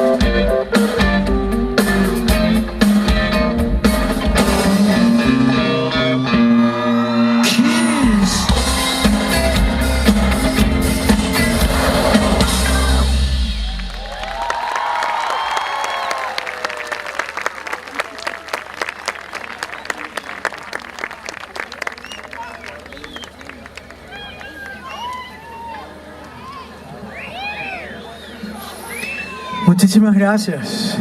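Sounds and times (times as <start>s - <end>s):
live band playing: 0.0s - 14.6s
crowd applause and cheering: 2.3s - 29.7s.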